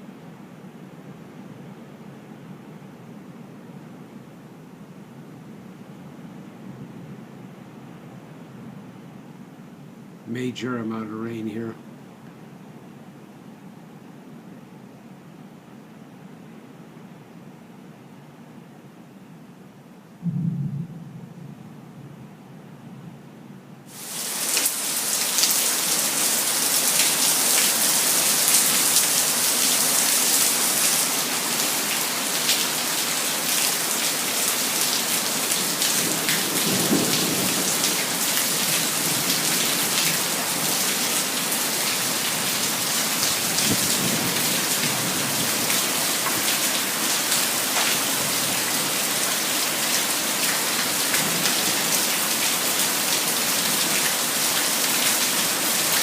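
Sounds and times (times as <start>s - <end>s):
thunder rolling: 20.2s - 23.2s
heavy rain pouring: 23.9s - 56.0s.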